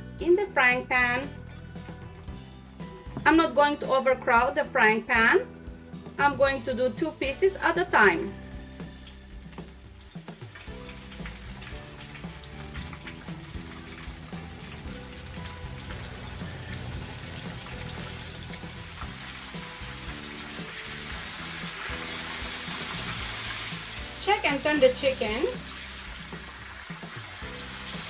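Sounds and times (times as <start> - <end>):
background music: 0.0 - 28.0
chicken deep-frying in oil: 0.7 - 28.0.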